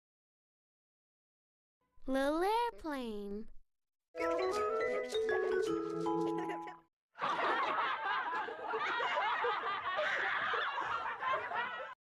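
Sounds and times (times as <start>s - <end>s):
group of people laughing: 6.3s - 12.0s.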